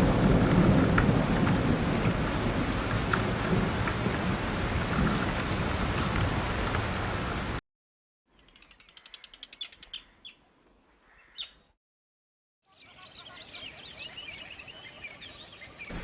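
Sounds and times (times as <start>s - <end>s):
birds chirping: 8.3s - 11.7s, 12.6s - 16.0s.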